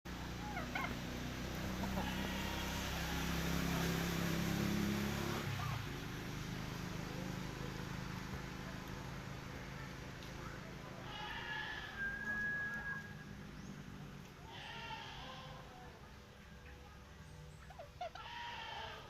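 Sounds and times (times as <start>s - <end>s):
vehicle engine running: 0.1s - 11.4s
short high calls: 11.1s - 13.4s.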